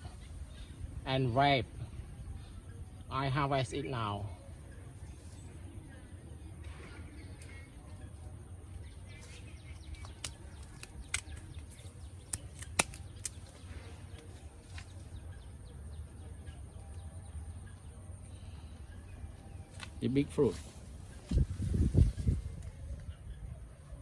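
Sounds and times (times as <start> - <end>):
fruit stem clicks and snaps: 9.8 - 13.6, 14.2 - 15.1, 19.7 - 20.0.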